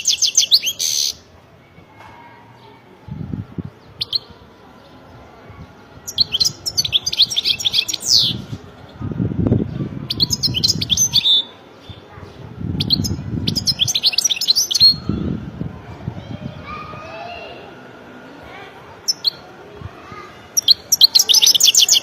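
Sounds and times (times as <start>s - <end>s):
low rumbling noise: 2.9s - 11.2s, 14.8s - 20.9s.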